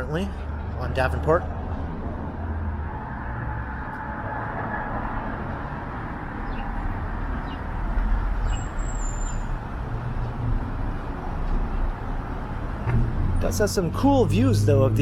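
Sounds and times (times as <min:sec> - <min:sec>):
passing cars: 0:00.0 - 0:15.0
heavy vehicle engine rumble: 0:05.4 - 0:15.0.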